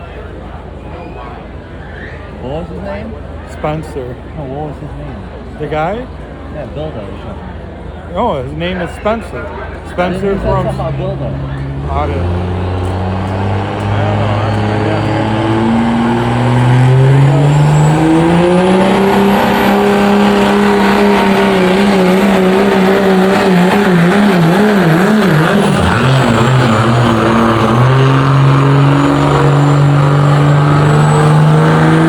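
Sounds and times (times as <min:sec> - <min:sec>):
faint high whistle: 0:00.9 - 0:02.4
truck engine at full throttle: 0:02.5 - 0:32.0.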